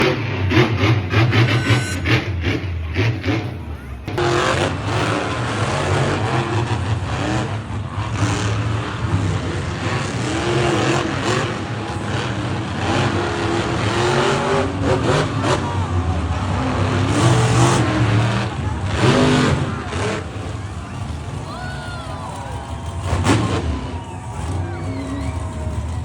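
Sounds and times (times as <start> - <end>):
monster truck engine revving: 0.0 - 26.0.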